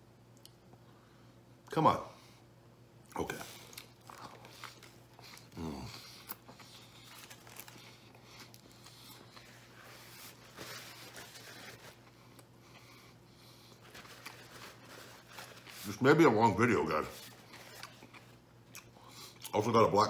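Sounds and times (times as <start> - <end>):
faint steady hum: 0.0 - 20.0
man chewing sandwich: 3.0 - 16.0, 16.6 - 19.5
man humming mmm: 5.5 - 6.0
paper napkin rustling: 9.3 - 12.0, 13.8 - 17.9.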